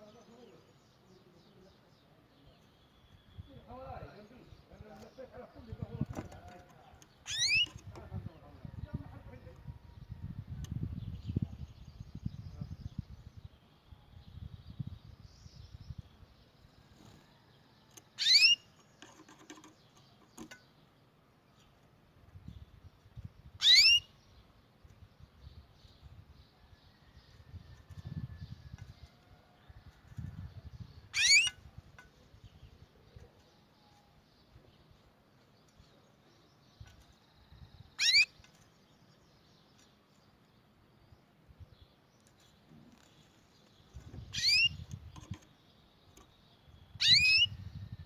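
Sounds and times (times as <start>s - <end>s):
canary call notes: 7.3s - 7.8s, 18.2s - 18.6s, 23.6s - 24.1s, 31.1s - 31.6s, 38.0s - 38.4s, 44.3s - 44.8s, 47.0s - 47.5s
canary rising call: 31.2s - 31.5s.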